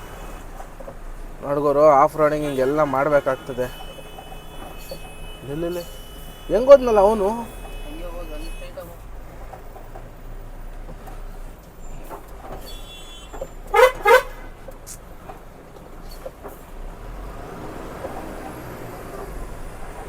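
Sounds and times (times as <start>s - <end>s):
road noise: 0.0s - 20.0s
truck engine rumble: 0.0s - 20.0s
vehicle horn toots: 2.2s - 9.1s, 12.6s - 14.7s.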